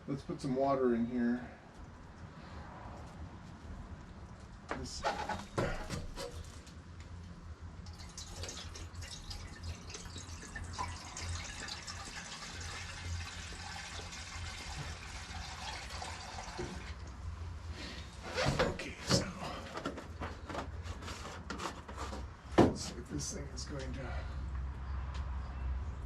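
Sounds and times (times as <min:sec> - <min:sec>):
water pouring into a tank: 0:07.8 - 0:17.2.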